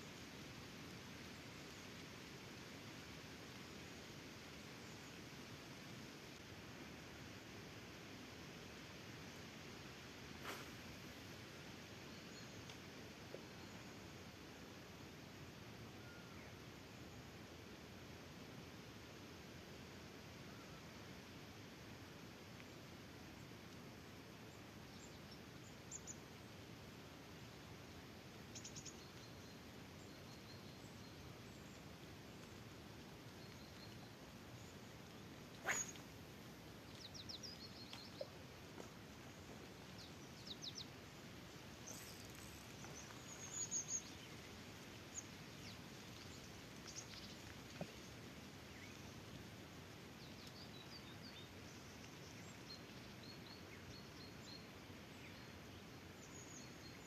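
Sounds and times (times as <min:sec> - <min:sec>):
faint outdoor hiss: 0:00.0 - 0:57.0
bird chirps and trills: 0:35.6 - 0:36.0.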